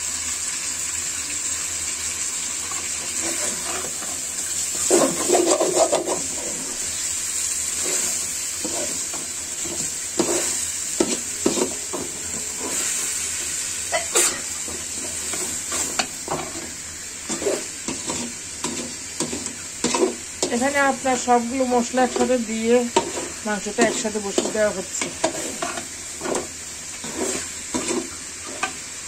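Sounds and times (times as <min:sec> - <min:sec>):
curry sizzling in a pot: 0:00.0 - 0:29.0
metal spatula scraping pot: 0:02.7 - 0:06.8, 0:13.9 - 0:28.9.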